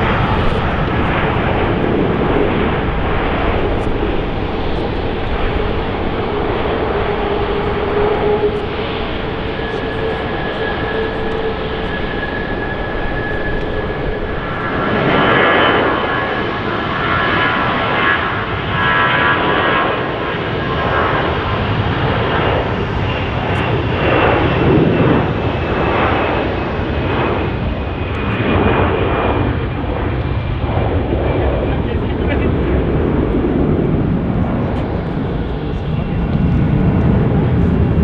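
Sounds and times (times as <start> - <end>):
jet engines roaring past: 0.0 - 38.0.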